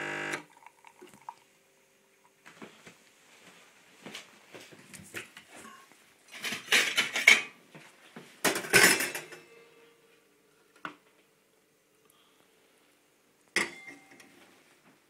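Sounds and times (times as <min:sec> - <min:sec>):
crockery and utensils clinking: 0:05.7 - 0:07.6, 0:08.5 - 0:09.7, 0:13.6 - 0:14.4.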